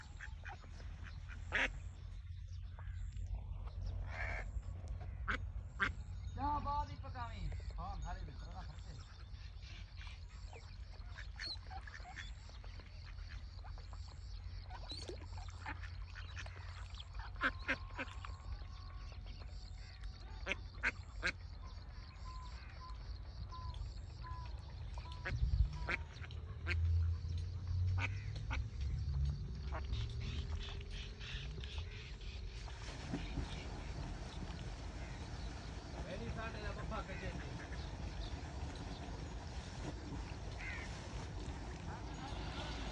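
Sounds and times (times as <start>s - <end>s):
ducks quacking: 0.0s - 2.0s, 3.8s - 6.1s, 8.6s - 19.1s, 19.8s - 42.9s
steady low rumble: 24.1s - 42.9s.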